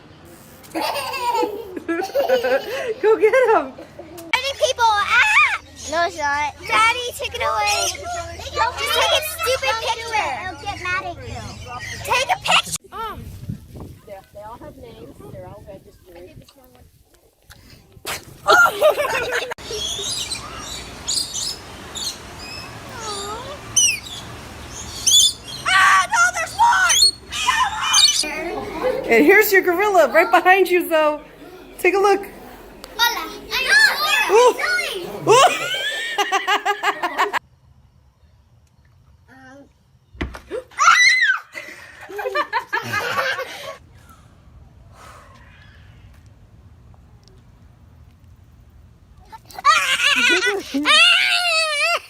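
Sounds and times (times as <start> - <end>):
laughter with high squeals: 0.6 - 3.0, 18.4 - 20.4, 25.1 - 30.3, 31.2 - 37.4, 40.5 - 43.8, 49.5 - 52.0
animal chirps and squeaks: 19.7 - 24.2, 24.8 - 25.7, 26.7 - 28.3.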